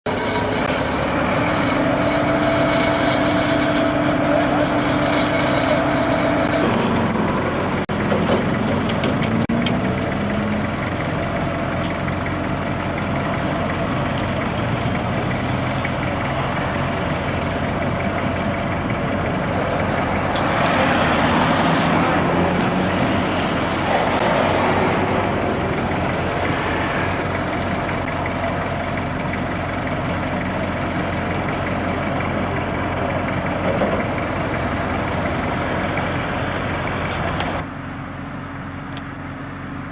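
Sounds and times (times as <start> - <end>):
heavy vehicle engine idling: 0.0 - 39.9
rushing noise: 15.6 - 28.8.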